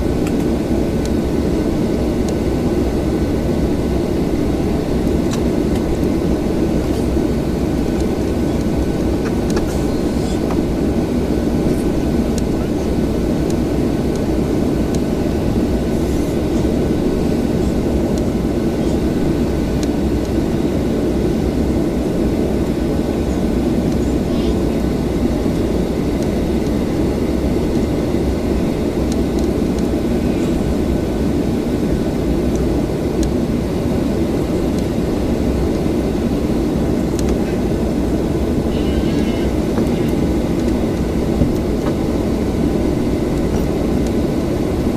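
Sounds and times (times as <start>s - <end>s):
low aircraft cabin drone: 0.0s - 44.9s.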